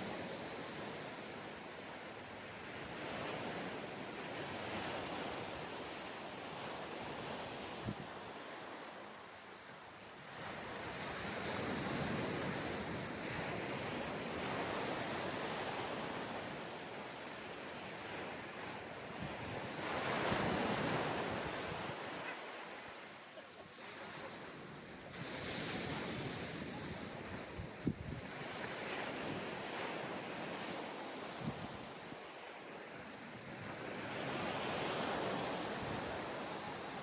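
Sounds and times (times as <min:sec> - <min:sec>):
waves breaking on beach: 0:00.0 - 0:37.0
wind on microphone: 0:25.2 - 0:29.6.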